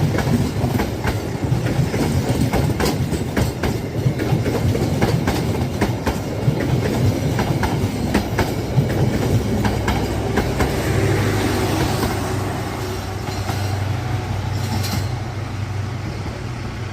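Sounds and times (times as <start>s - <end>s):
train wheels clacking over rail joints: 0.0s - 15.4s
train rumble: 0.0s - 16.9s.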